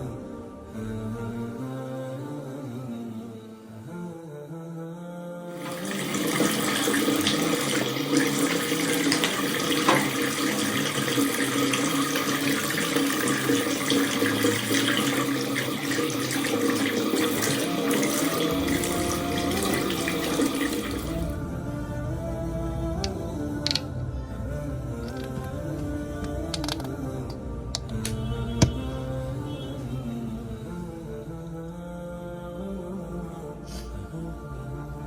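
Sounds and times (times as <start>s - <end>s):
tap water running into sink: 5.6s - 21.4s.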